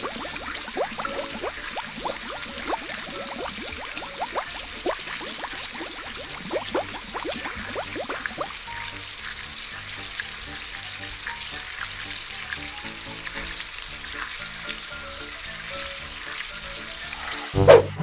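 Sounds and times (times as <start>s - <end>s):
crackling hiss: 0.0s - 10.4s
quiet background music: 0.0s - 18.0s.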